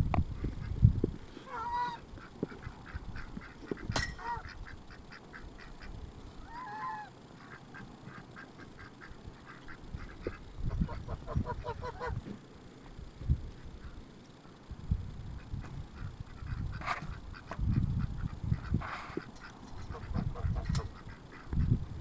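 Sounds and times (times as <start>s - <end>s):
ducks quacking: 1.5s - 12.2s, 15.9s - 21.8s
geese honking: 1.5s - 12.2s.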